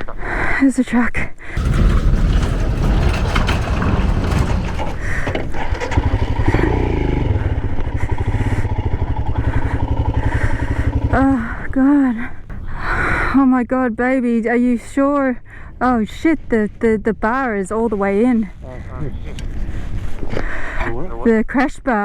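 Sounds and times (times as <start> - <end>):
motorcycle engine: 1.6 - 12.8.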